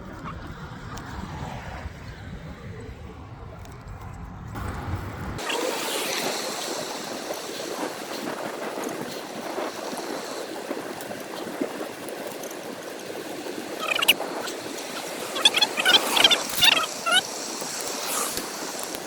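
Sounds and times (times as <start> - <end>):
wind on microphone: 0.0 - 19.0
short high calls: 13.8 - 17.3.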